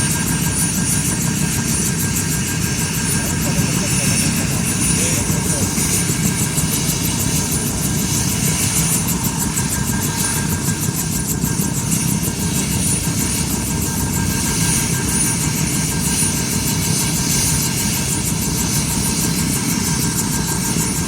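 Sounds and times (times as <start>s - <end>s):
helicopter running: 0.0s - 21.0s.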